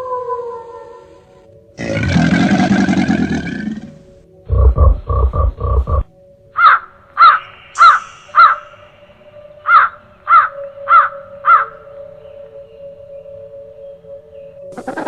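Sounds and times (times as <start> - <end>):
lower tone: 4.5 - 6.1
crow cawing: 6.6 - 8.7, 9.7 - 11.7.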